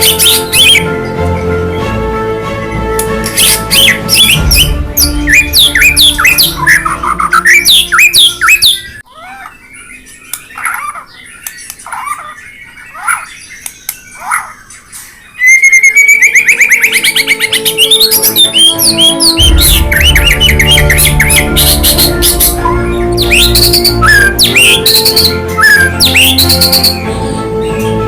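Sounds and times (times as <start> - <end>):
bird trill: 0.0 - 2.0, 2.6 - 28.0
background music: 0.0 - 9.0, 15.6 - 28.0
songbird chirping: 0.0 - 28.0.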